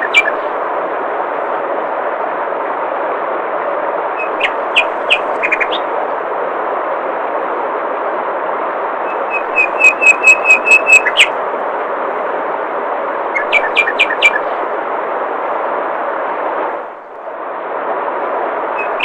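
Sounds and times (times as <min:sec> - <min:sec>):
songbird singing high notes: 0:00.0 - 0:00.4, 0:04.2 - 0:05.9, 0:09.1 - 0:11.4, 0:13.3 - 0:14.5, 0:18.8 - 0:19.0.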